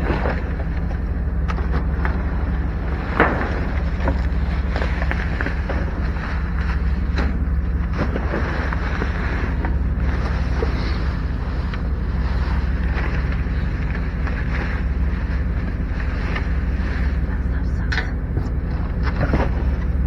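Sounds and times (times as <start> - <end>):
running vehicle rumble: 0.0 - 20.0.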